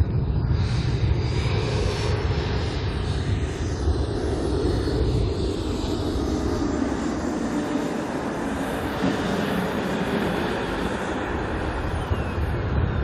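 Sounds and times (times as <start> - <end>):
jet engine roar: 0.0 - 13.0.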